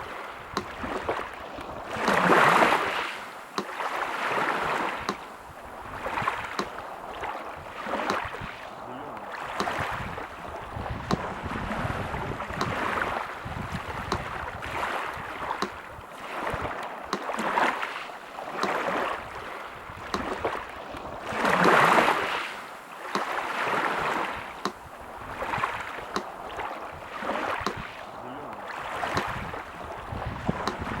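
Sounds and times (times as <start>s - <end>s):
sea surf washing: 0.0s - 31.0s
metronome ticking: 6.6s - 6.8s, 15.6s - 15.8s.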